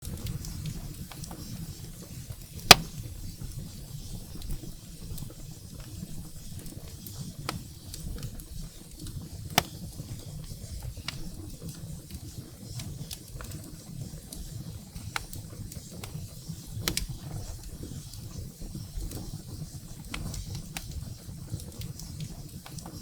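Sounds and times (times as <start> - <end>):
firewood burning with crackling pops: 0.0 - 23.0.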